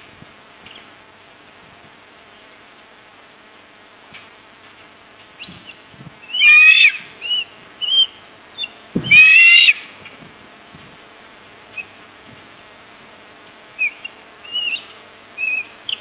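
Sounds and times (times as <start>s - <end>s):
faint steady hiss: 0.0s - 16.0s
harsh bird calls: 5.4s - 10.0s, 13.8s - 16.0s
short bird chirps: 6.3s - 8.8s, 13.8s - 16.0s.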